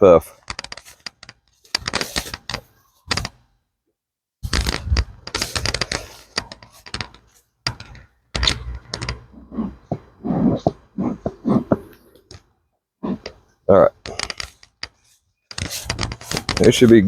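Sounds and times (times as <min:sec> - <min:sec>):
hive tool prying wooden frames: 0:04.5 - 0:12.4, 0:14.0 - 0:16.8.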